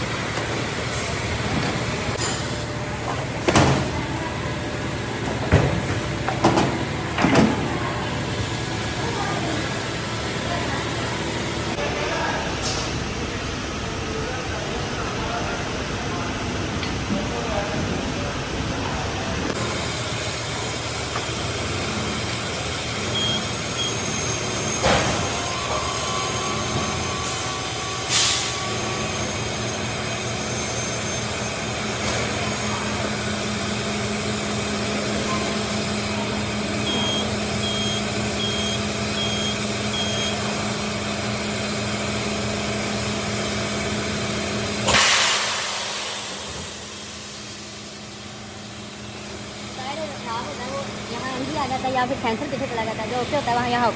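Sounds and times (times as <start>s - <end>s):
machinery humming: 0.0s - 53.9s
compressed air blasts: 44.8s - 47.6s.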